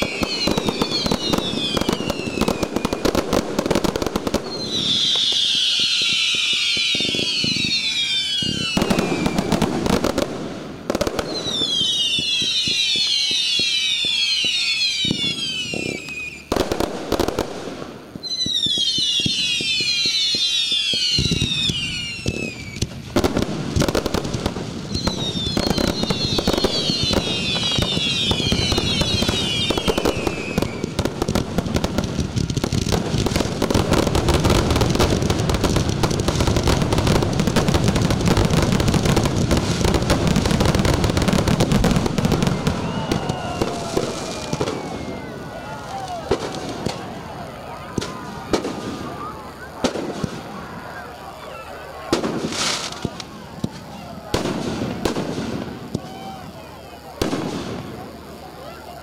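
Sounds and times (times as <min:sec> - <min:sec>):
fireworks whistles sliding down: 0:00.0 - 0:10.3, 0:10.9 - 0:59.0
fireworks bangs and crackling: 0:00.0 - 0:59.0.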